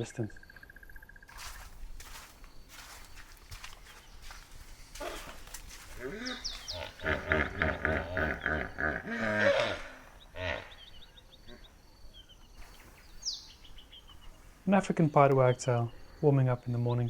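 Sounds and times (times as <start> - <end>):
small birds chirping: 0.0 - 17.0
high bird trill: 0.1 - 17.0
hippopotamus honking grunts: 6.0 - 10.8.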